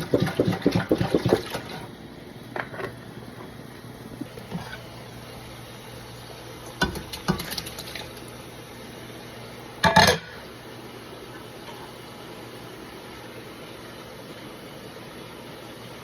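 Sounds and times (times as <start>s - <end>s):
pots and utensils clattering: 0.0s - 1.9s, 9.8s - 10.4s.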